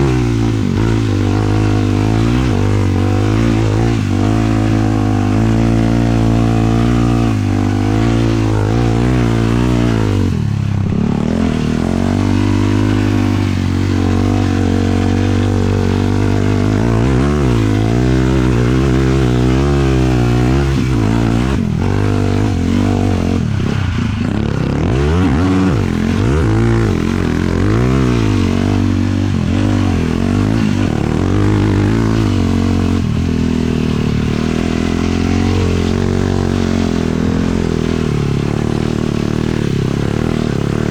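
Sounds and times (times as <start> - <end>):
quad bike engine revving: 0.0 - 40.9.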